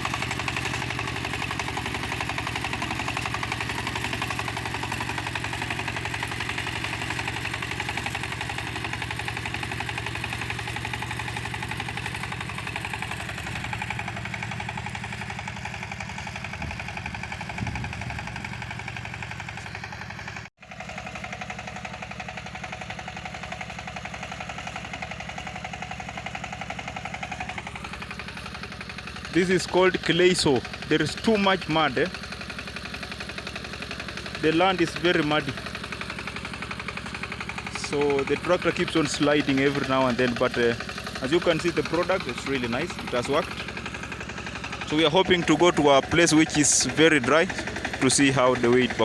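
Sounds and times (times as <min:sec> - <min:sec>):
walking tractor engine running: 0:00.0 - 0:49.0.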